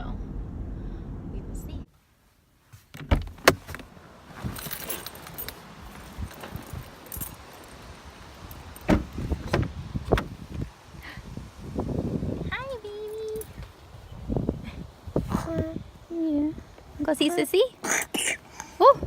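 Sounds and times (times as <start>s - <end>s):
keys jangling: 4.4s - 9.2s.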